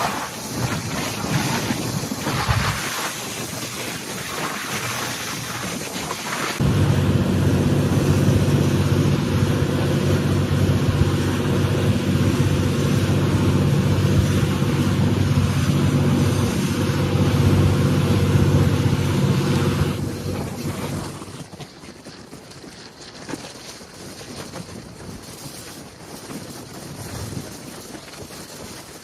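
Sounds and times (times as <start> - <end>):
boat engine running: 0.0 - 21.6.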